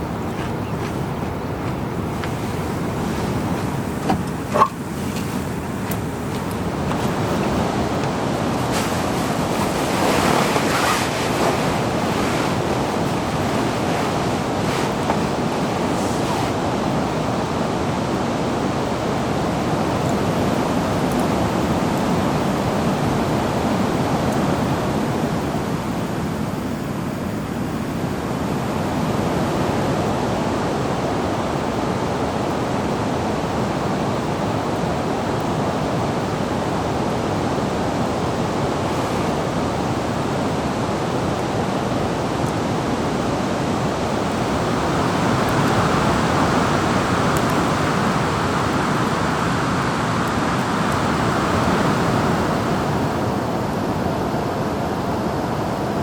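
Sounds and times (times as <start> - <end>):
water rushing: 0.0 - 17.7, 37.2 - 41.2.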